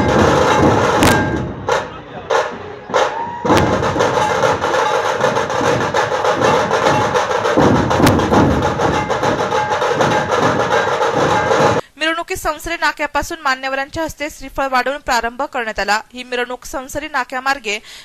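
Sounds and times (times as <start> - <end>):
drum troupe playing fast beat: 0.0 - 11.8.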